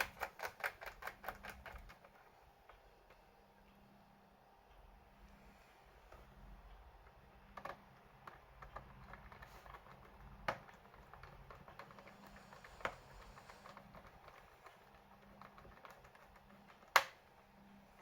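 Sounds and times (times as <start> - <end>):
typing on laptop keyboard: 0.0 - 2.3, 7.1 - 17.4.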